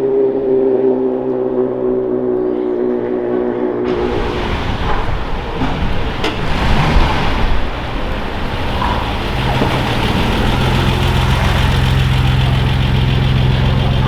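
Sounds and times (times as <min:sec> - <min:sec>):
car engine idling: 0:03.9 - 0:14.0.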